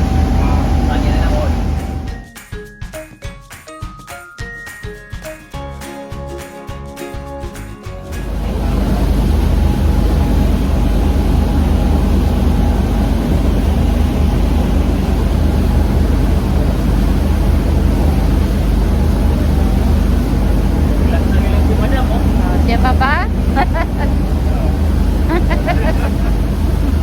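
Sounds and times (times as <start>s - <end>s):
boat engine humming: 0.0s - 2.2s, 7.9s - 27.0s
rushing noise: 0.0s - 2.2s, 8.0s - 27.0s.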